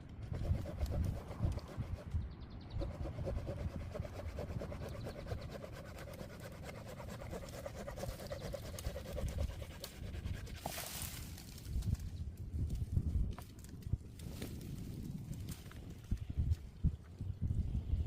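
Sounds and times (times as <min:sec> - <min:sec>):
hand saw cutting wood: 0:02.8 - 0:10.8.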